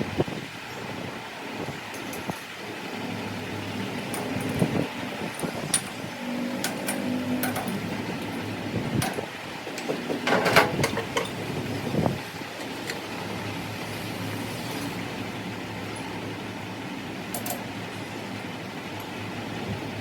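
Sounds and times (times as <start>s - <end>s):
steady background hum: 0.0s - 20.0s
clicks and knocks of tools: 4.1s - 6.0s, 6.6s - 8.4s, 9.0s - 11.4s, 12.6s - 13.0s, 17.3s - 17.7s.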